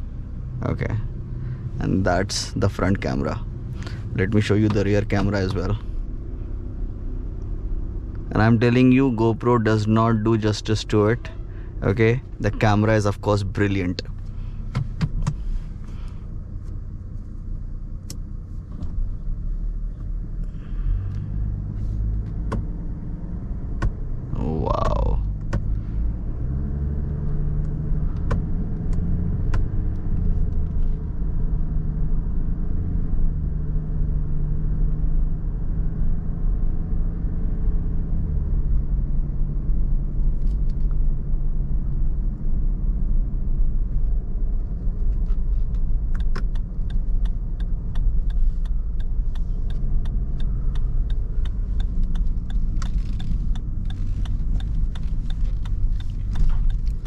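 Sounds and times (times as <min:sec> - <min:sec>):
tyre and road rumble: 0:00.0 - 0:31.4, 0:43.2 - 0:57.0
car engine hum: 0:00.0 - 0:57.0
sharp clicks and ticks: 0:45.7 - 0:57.0.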